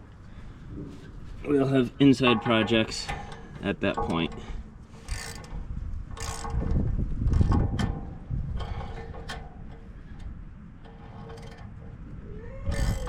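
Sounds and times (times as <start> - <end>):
ratchet wrench clicking: 5.0 - 5.5, 6.2 - 6.8, 12.6 - 13.0.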